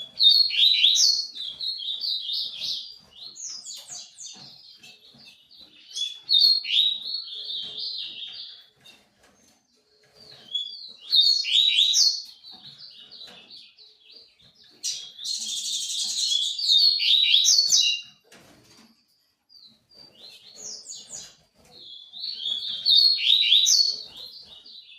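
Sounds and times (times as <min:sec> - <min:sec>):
songbird chirping: 0:00.0 - 0:24.9.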